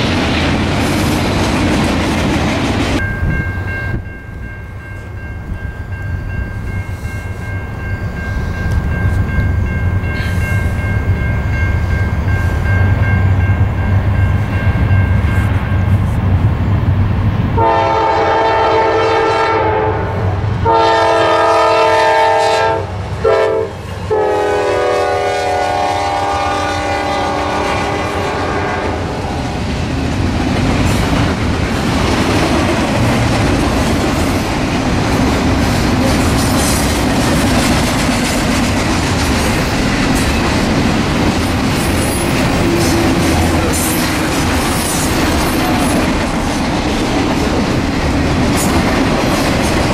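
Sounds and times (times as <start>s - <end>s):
locomotive engines rumbling: 0.0s - 49.9s
train horn blasts: 17.6s - 29.2s, 42.5s - 44.1s
train wheels clattering: 29.6s - 49.9s.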